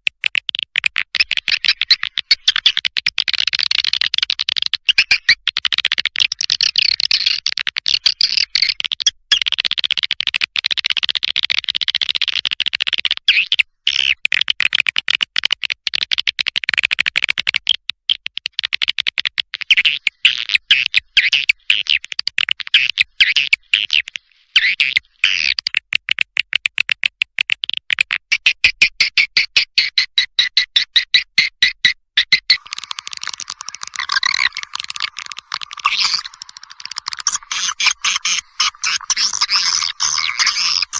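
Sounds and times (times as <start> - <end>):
swiftlet calls twittering: 32.5 - 40.9.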